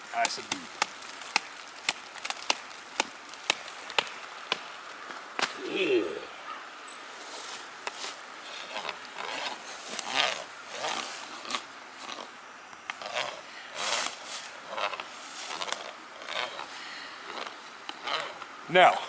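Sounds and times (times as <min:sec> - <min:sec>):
stick rasping on wooden stake: 0:07.3 - 0:12.3, 0:12.9 - 0:16.7, 0:17.3 - 0:19.0.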